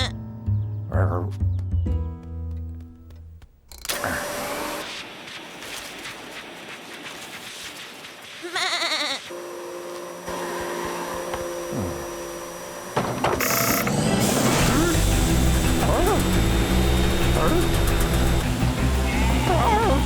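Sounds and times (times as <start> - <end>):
cartoon sheep bleating: 8.4 - 9.3, 19.1 - 20.0.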